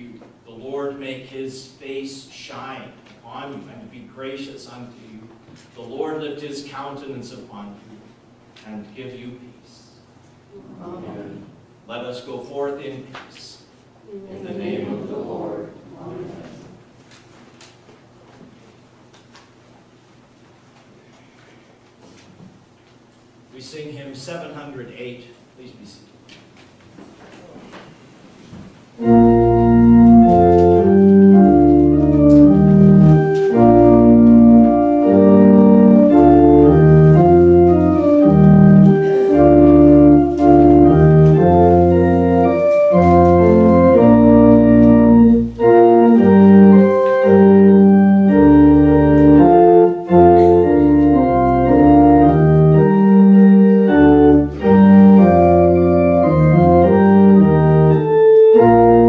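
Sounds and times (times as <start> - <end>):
church organ playing a hymn: 29.0 - 59.0.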